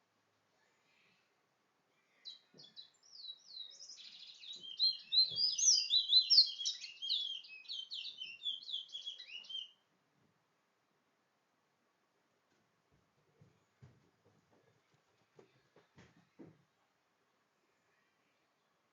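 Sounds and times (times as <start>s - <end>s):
songbird warbling: 2.3s - 9.8s.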